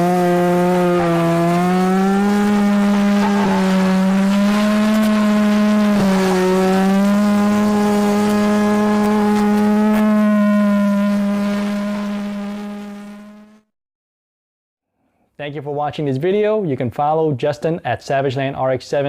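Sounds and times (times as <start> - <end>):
rotary engine revving high: 0.0 - 13.7.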